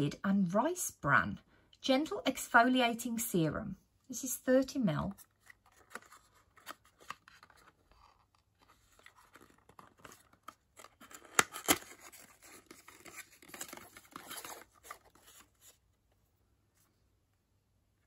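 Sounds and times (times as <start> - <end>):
packaging rustling and tearing: 5.2 - 15.8.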